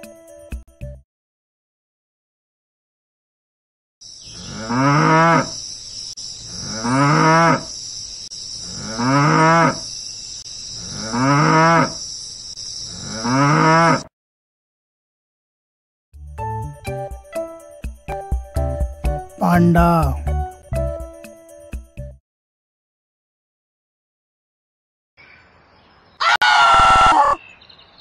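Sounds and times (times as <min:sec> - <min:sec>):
steady high-pitched hiss: 0:07.6 - 0:09.0, 0:09.8 - 0:11.1, 0:12.0 - 0:13.0
cattle mooing: 0:13.0 - 0:14.1.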